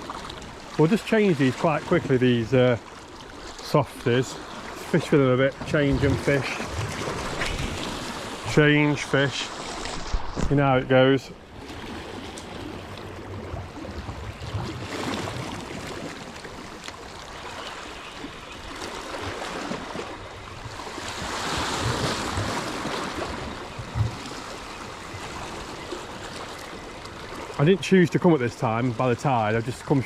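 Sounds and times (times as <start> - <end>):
waves lapping against rocks: 0.0 - 30.0.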